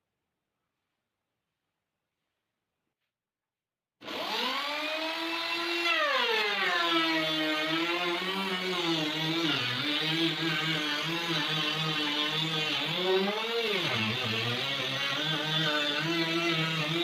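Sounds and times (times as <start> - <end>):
power tool motor whining: 4.0 - 17.0.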